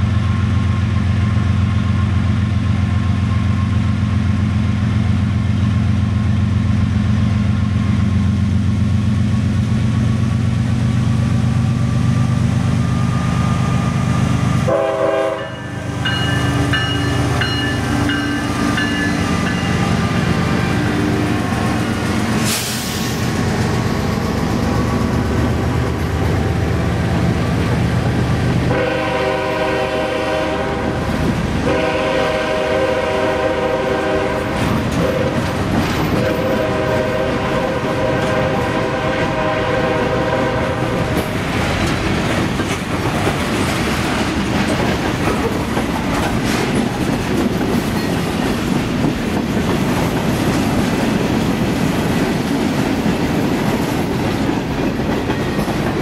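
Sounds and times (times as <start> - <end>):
train air horn blasts: 14.6 - 21.4, 28.7 - 35.4, 36.2 - 41.2
train wheels clacking on rails: 15.4 - 30.0, 30.9 - 56.0.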